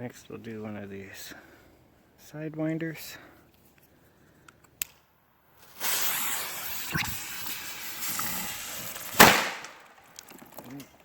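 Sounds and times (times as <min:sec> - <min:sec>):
firecracker hissing: 0:05.5 - 0:10.3
firecracker bang: 0:05.7 - 0:10.1.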